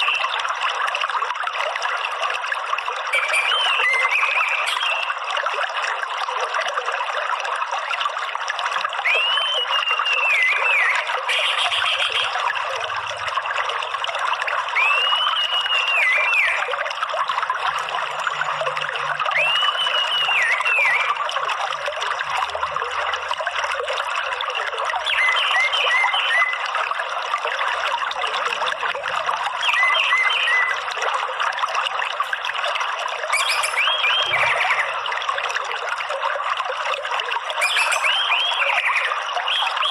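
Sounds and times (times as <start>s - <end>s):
running water: 0.0s - 39.9s
bird whistling: 9.1s - 12.3s, 14.8s - 16.6s, 19.3s - 21.2s, 25.1s - 26.6s, 29.6s - 30.8s, 33.3s - 35.0s, 37.6s - 39.9s.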